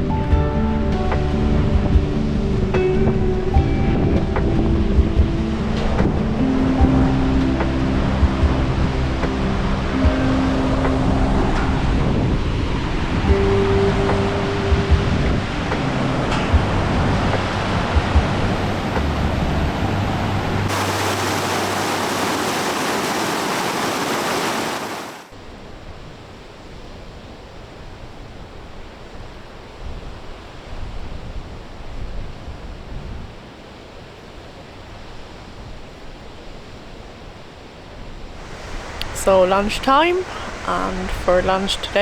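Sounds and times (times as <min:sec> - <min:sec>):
outdoor rushing noise: 0:20.7 - 0:25.3.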